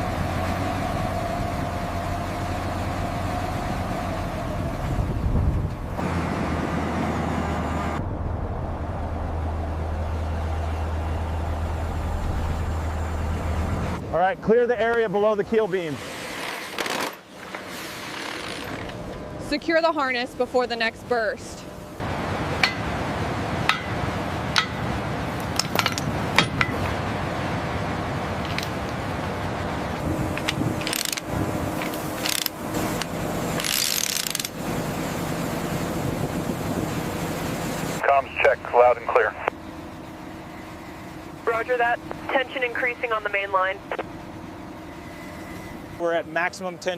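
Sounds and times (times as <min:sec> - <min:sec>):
heavy machinery drone: 0:00.0 - 0:46.9
sharp metallic clinks: 0:33.6 - 0:34.6.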